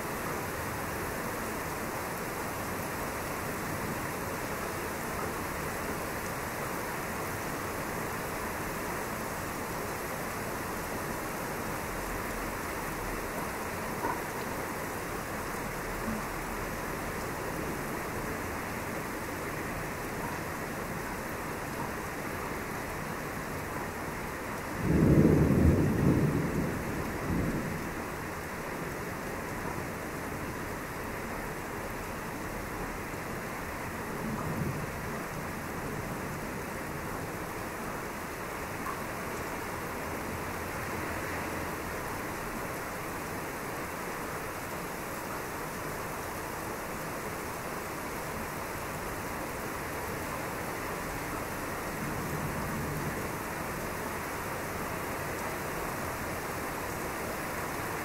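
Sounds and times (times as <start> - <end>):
steady rain: 0.0 - 58.0
thunder rumbling: 24.7 - 28.5.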